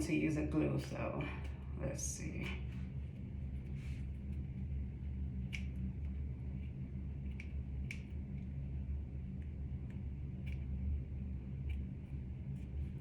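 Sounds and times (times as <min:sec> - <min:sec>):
steady low hum: 0:00.0 - 0:13.0
faint light clicks: 0:05.4 - 0:06.2, 0:07.2 - 0:08.6.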